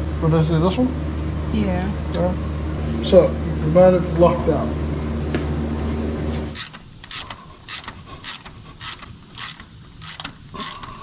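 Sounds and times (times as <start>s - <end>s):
low machine hum: 0.0s - 6.7s
hand tools clicking on engine: 6.6s - 11.0s.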